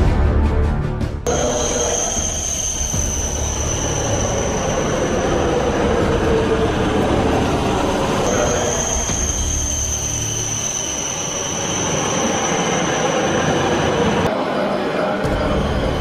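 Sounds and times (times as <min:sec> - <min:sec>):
high train whine: 0:01.3 - 0:16.0
train rumbling on rails: 0:01.3 - 0:16.0.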